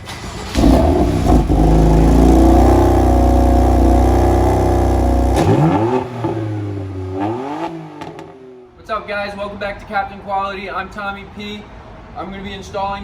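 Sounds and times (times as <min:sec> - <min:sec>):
car engine revving then idling: 0:00.0 - 0:08.6.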